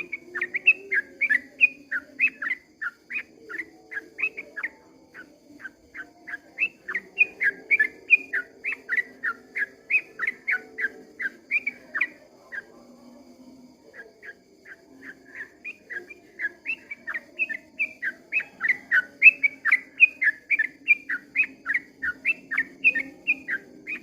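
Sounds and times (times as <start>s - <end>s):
bird rapid whistled chirps: 0.0s - 12.7s.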